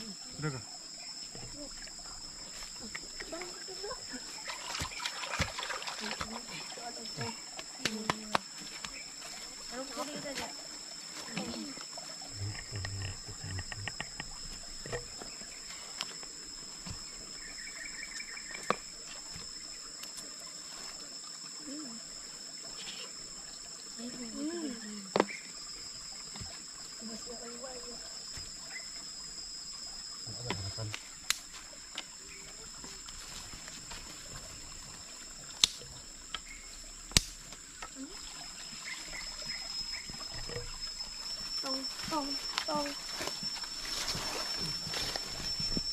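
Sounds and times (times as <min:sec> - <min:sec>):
high-pitched insect drone: 0:00.0 - 0:45.9
wood fire popping: 0:37.0 - 0:37.6
small click: 0:37.1 - 0:37.4.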